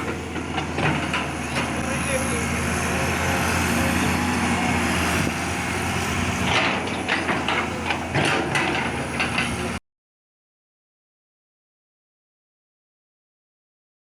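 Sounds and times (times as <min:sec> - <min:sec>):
excavator diesel engine running: 0:00.0 - 0:09.8.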